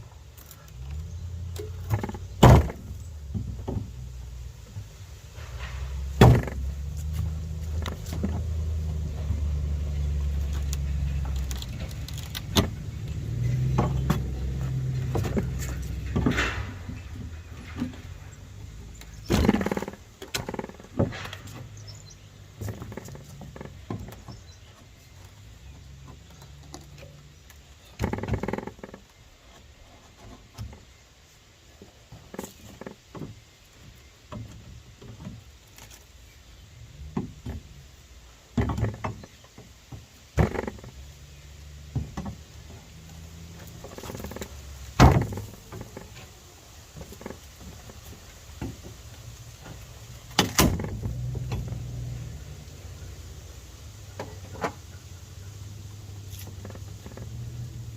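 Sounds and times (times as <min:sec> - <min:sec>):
wooden boards being pried up: 0:00.3 - 0:30.9, 0:38.5 - 0:52.4.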